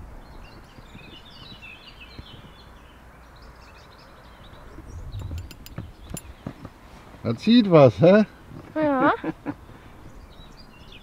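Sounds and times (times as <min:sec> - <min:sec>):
faint songbird chirping: 0:00.0 - 0:11.0
sharp clicks: 0:05.2 - 0:06.3.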